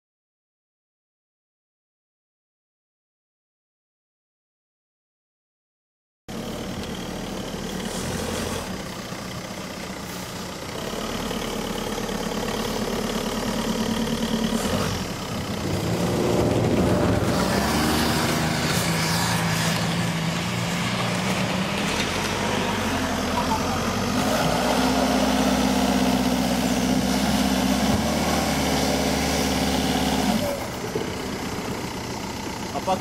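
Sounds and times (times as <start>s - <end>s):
car engine revving: 10.7s - 31.9s.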